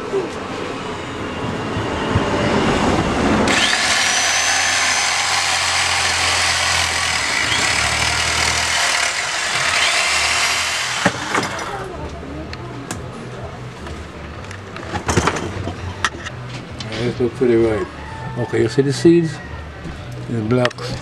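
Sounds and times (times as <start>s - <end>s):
electric jigsaw cutting gourd: 3.5s - 11.7s.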